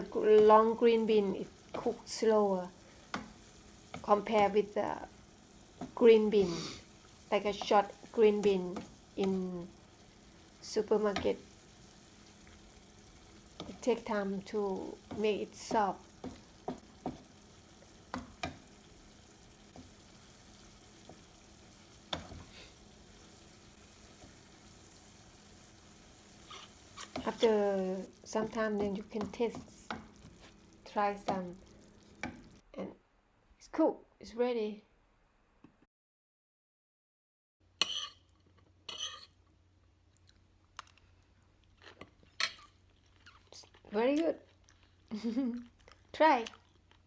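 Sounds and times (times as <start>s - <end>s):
beans sizzling in a pan: 0.0s - 32.6s
person chewing food: 40.1s - 47.0s.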